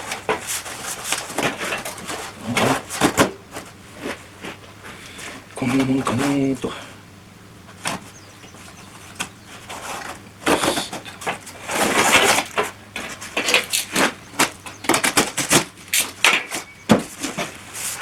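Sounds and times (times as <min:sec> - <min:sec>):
metal workpieces knocking: 0:07.7 - 0:17.6.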